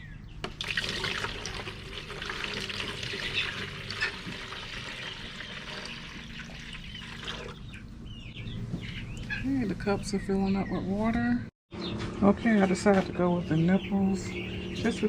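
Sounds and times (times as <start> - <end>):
water pouring into plastic container: 0.5 - 7.6.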